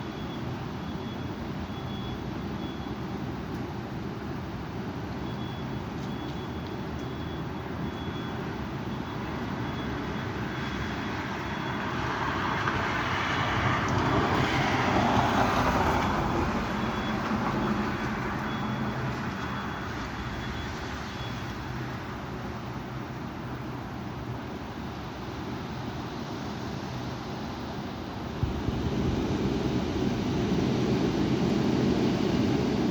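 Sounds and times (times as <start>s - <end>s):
faint high beep: 0.0s - 3.0s, 5.2s - 10.9s, 16.8s - 17.8s, 18.4s - 21.6s
strong wind rushing: 28.4s - 32.9s.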